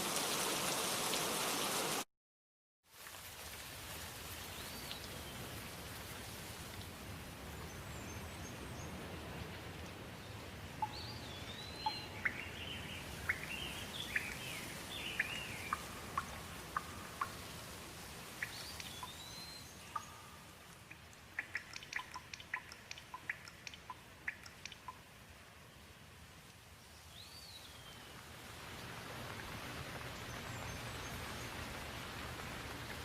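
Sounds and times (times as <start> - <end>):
rain pattering: 0.0 - 2.0, 2.9 - 33.0
water drops dripping: 19.9 - 25.0.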